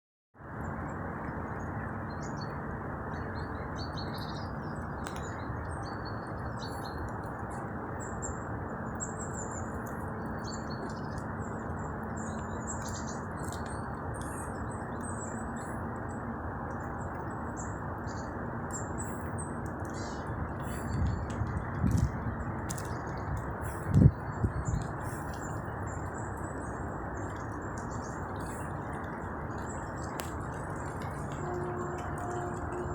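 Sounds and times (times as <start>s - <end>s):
birds chirping: 1.5s - 32.9s.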